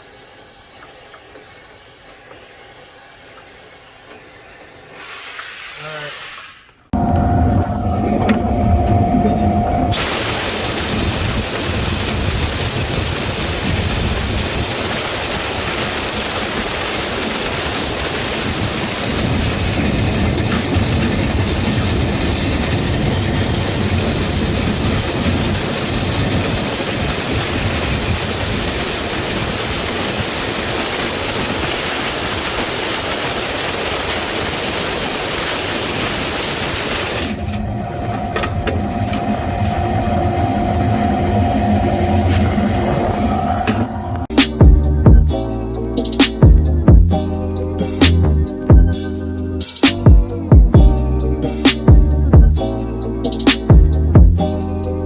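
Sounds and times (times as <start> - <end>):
air rushing through vent line: 6.9 - 44.6
motor hum: 7.0 - 32.5, 34.8 - 44.3.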